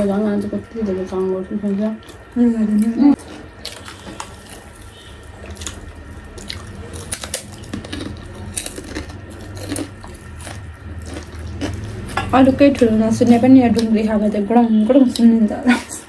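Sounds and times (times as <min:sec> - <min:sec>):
crunchy snack chewing: 0:03.2 - 0:12.2.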